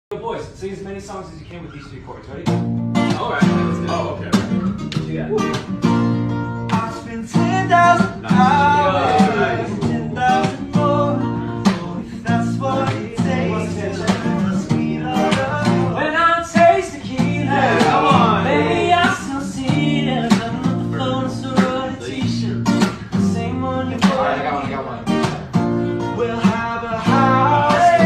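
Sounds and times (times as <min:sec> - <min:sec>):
acoustic guitar strumming: 0:02.4 - 0:28.0
person singing: 0:06.7 - 0:25.3, 0:26.1 - 0:28.0.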